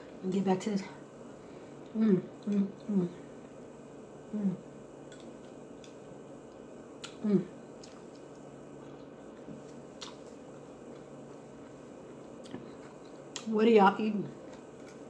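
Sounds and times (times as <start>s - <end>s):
person humming mm: 1.9s - 3.2s, 4.3s - 4.7s, 7.2s - 7.6s
wet chewing smacks: 7.8s - 13.5s.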